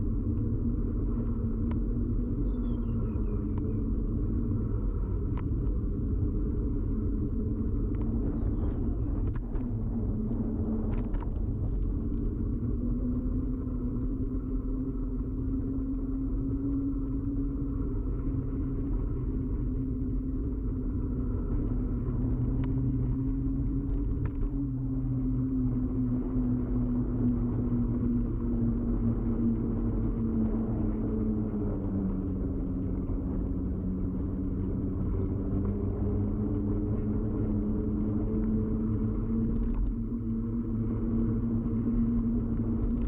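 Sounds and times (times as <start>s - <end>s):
humming tone: 0.0s - 43.0s
low road vibration rumble: 0.0s - 43.0s.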